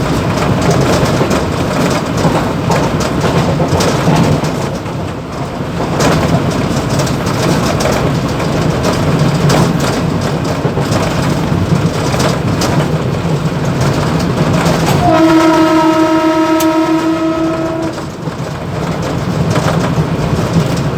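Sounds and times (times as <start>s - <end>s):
train rumble: 0.0s - 20.9s
rattles and knocks: 5.8s - 15.2s.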